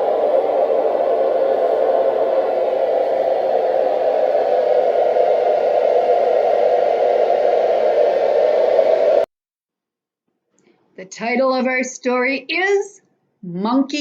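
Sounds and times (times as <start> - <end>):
loud steady rushing noise: 0.0 - 9.3.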